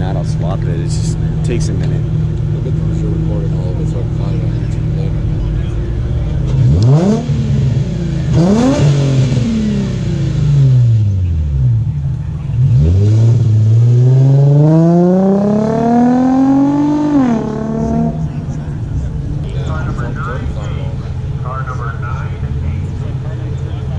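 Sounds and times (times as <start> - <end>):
car engine revving: 0.0 - 23.9.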